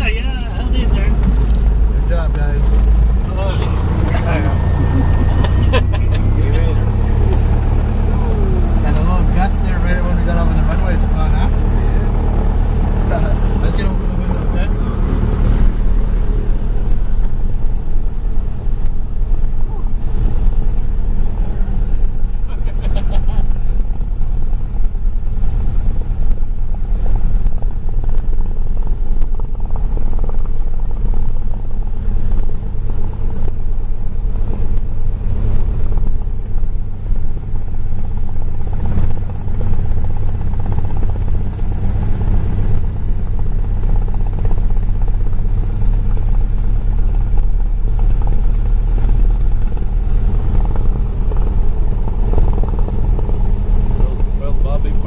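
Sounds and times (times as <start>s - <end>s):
aircraft engine drone: 0.0s - 26.2s.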